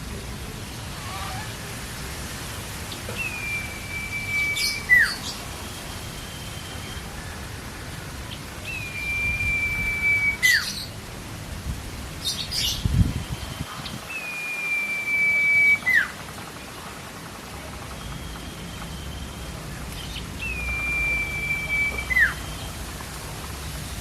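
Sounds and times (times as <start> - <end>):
bird whistling: 3.2 - 7.1, 8.6 - 10.9, 12.6 - 16.2, 17.9 - 22.8.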